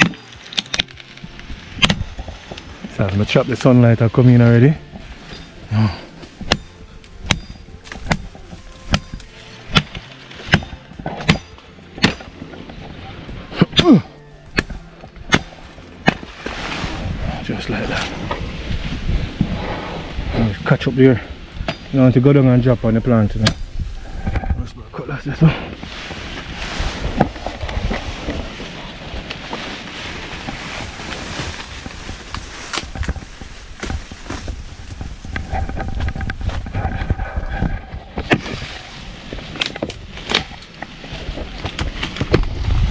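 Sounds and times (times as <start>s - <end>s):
machete chopping tree limb: 1.8s - 2.2s, 6.3s - 12.5s, 13.6s - 16.6s, 38.2s - 38.7s, 39.5s - 40.8s
gusty wind buffeting microphone: 16.4s - 42.9s.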